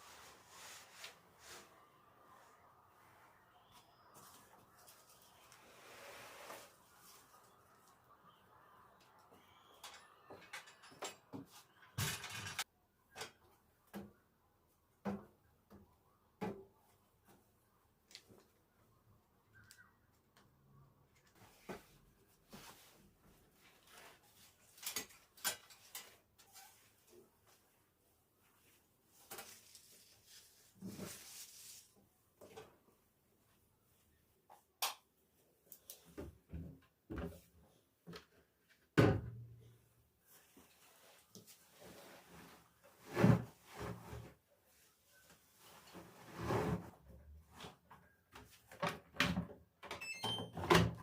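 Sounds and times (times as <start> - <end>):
soft handling rustles: 40.2 - 43.0.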